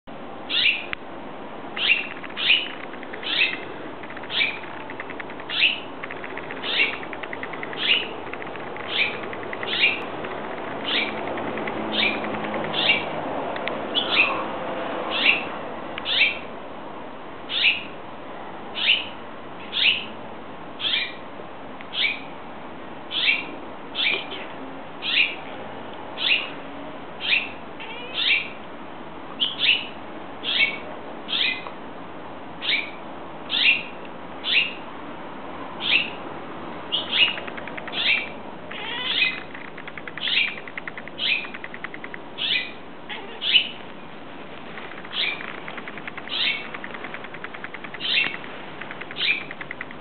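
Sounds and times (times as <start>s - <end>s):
bird calling: 1.8s - 13.1s, 36.9s - 43.8s, 44.8s - 50.0s.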